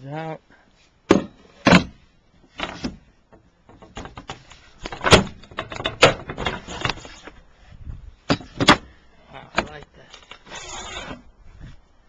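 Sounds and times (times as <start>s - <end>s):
sharp wooden knocks: 1.1s - 2.0s.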